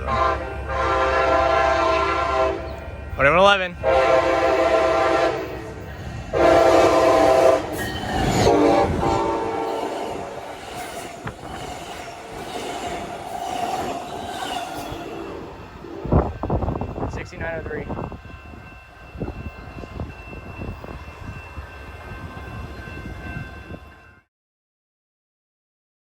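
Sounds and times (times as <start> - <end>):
train air horn blasts: 0.0 - 2.8, 3.8 - 10.6
train rumbling past: 0.0 - 24.3.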